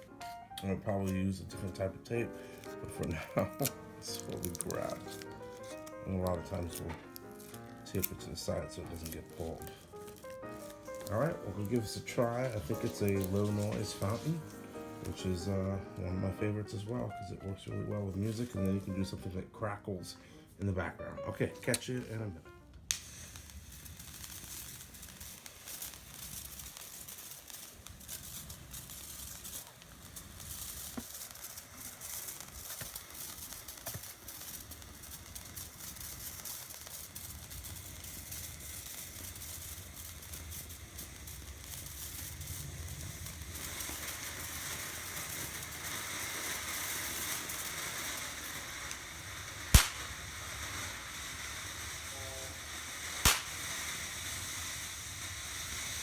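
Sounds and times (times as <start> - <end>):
firework fountain hissing and crackling: 0.0 - 56.0
sharp bangs: 49.8 - 50.1, 53.3 - 53.6.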